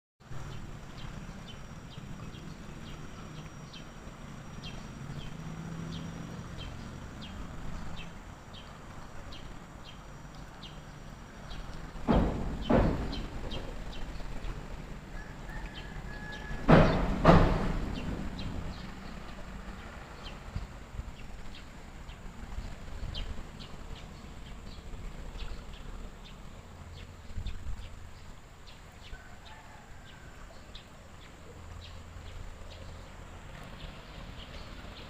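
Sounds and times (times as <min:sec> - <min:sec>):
low steady hum: 0:00.2 - 0:29.2
loud sudden thuds: 0:12.0 - 0:14.1, 0:16.5 - 0:18.9.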